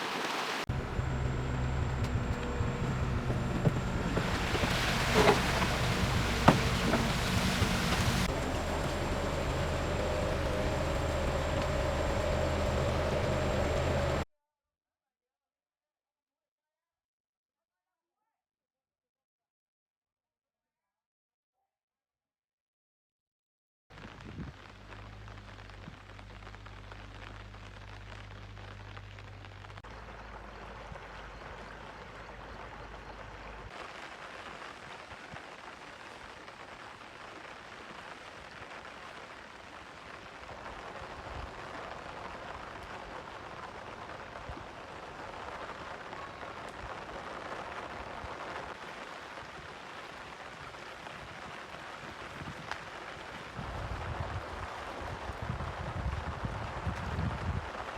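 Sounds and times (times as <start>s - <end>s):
heavy rain hissing: 0.0s - 14.2s, 24.0s - 57.9s
low steady hum: 0.7s - 14.2s.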